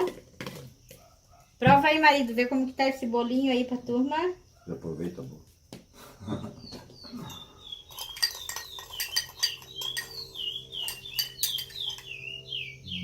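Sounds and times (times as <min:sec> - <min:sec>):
bird whistling: 0:06.7 - 0:13.0
cutlery clinking on a dish: 0:08.0 - 0:12.2.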